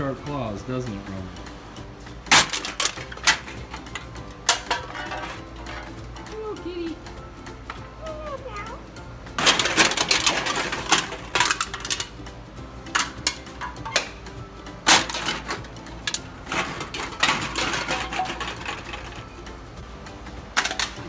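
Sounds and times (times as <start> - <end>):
aluminum cans clattering: 2.2 - 6.0, 9.4 - 12.2, 12.8 - 14.2, 14.8 - 19.4, 20.5 - 21.0.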